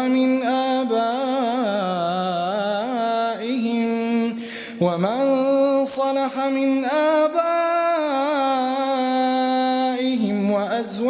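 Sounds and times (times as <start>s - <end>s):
man chanting melodically: 0.0s - 11.0s
man breathing in: 4.4s - 4.8s.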